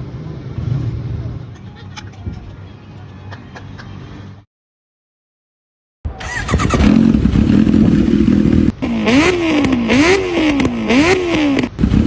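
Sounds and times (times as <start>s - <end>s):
person imitating motorcycle: 8.7s - 11.8s.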